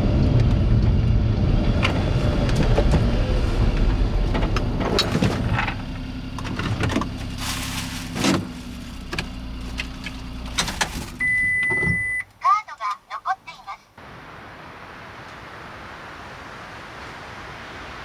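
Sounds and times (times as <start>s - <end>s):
car engine idling: 1.8s - 12.4s
high electronic beep from car: 11.2s - 12.3s.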